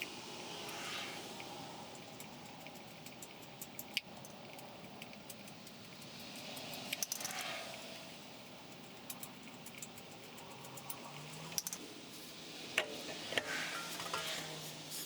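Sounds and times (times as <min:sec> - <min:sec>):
metallic tool clicks and clinks: 0:01.9 - 0:07.5, 0:08.4 - 0:11.8.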